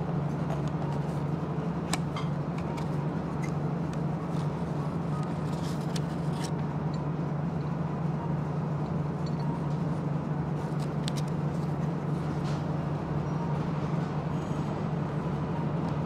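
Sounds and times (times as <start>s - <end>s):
railcar cabin rumble and hum: 0.0s - 16.0s
paper box rustling and clicks: 5.2s - 6.5s.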